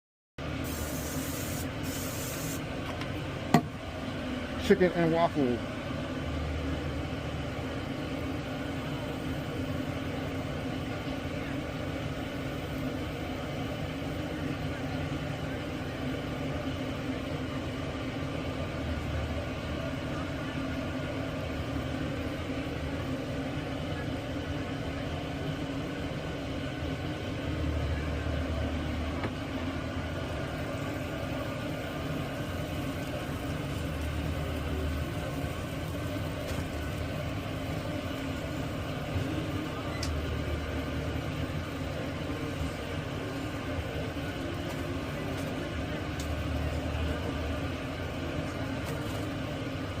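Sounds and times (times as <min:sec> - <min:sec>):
mechanical hum and rumble: 0:00.4 - 0:50.0.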